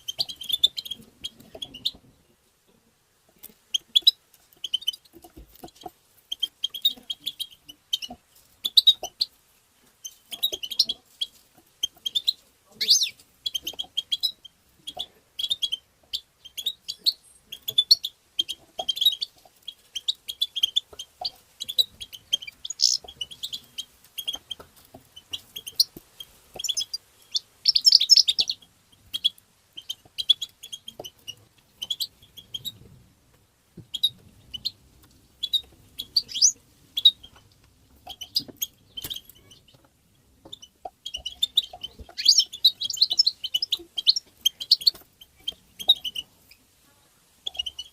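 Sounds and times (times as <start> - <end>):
goldfinch twittering: 20.0 - 24.4, 26.6 - 28.6, 35.4 - 37.4, 40.5 - 46.2.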